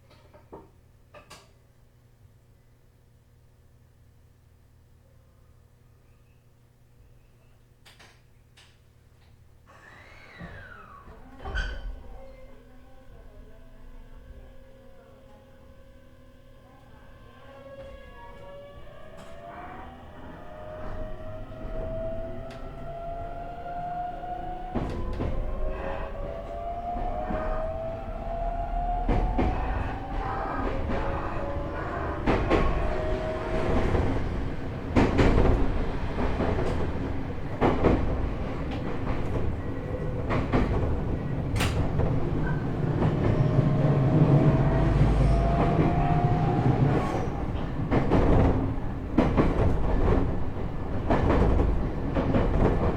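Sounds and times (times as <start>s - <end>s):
train inverter and motor whine: 12.5s - 52.9s
train running rumble: 13.2s - 52.9s
rail-joint clicks: 29.0s - 52.9s.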